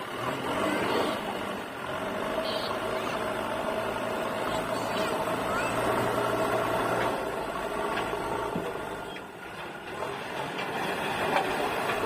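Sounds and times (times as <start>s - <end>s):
backhoe diesel engine under load: 0.0s - 12.0s
sharp knocks and clatters: 9.4s - 12.0s.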